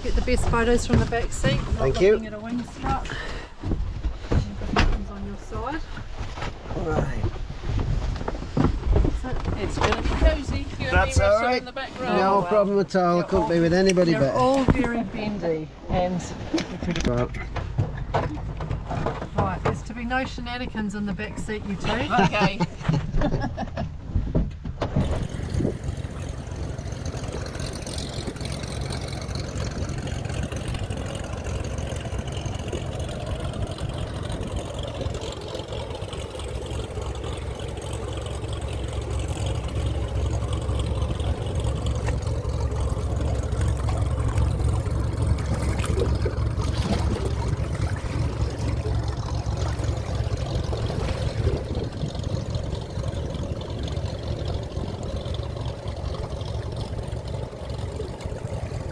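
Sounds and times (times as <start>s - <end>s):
plane engine drone in cabin: 24.9s - 58.9s.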